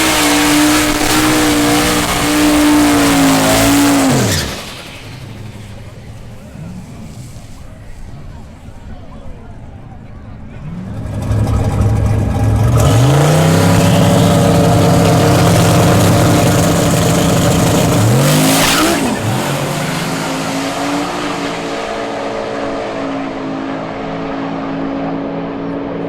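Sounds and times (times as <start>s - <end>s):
drag race car accelerating: 0.0s - 8.9s, 9.6s - 26.0s
brief hiss: 4.3s - 8.8s.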